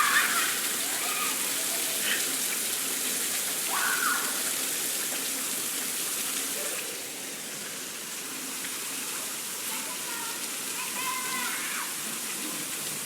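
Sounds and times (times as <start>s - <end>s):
child crying: 0.0s - 2.2s, 10.1s - 11.9s
rain falling: 0.0s - 13.0s.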